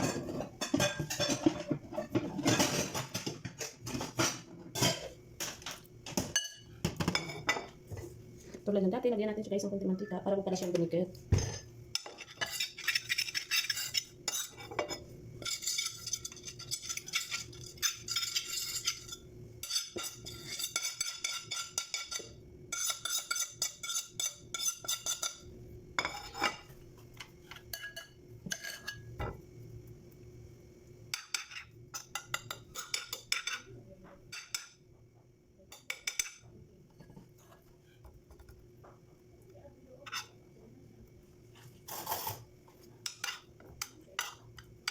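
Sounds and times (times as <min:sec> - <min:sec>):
utensil scraping a plate: 0:12.0 - 0:29.1, 0:40.0 - 0:40.4, 0:41.6 - 0:44.9.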